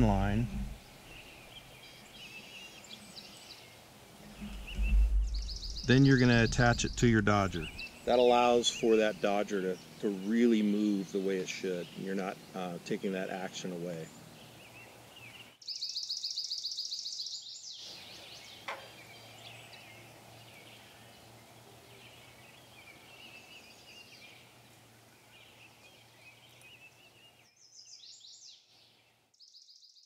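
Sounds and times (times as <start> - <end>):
birds chirping: 0.0 - 30.0
faint low hum: 4.2 - 9.4.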